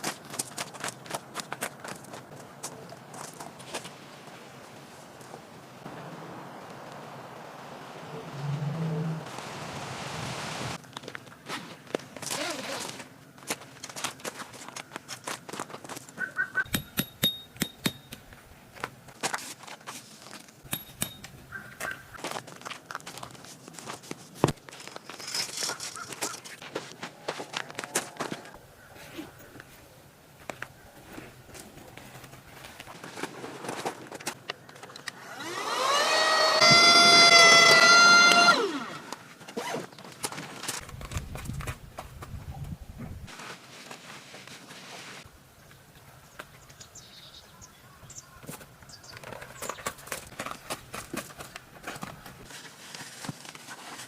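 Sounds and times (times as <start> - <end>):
rustling: 18.2 - 35.0, 38.6 - 45.8, 48.4 - 54.0
small electric motor whining: 35.2 - 39.1.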